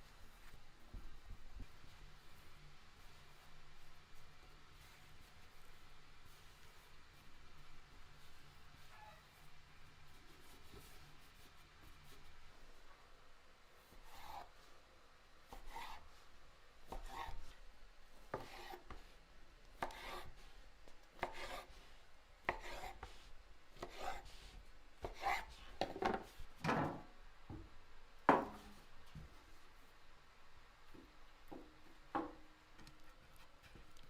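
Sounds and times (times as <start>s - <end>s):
knife cutting on wooden board: 16.9s - 17.5s, 18.4s - 19.0s, 19.8s - 20.3s, 21.2s - 21.7s, 22.5s - 23.1s, 23.8s - 24.3s, 25.0s - 25.5s.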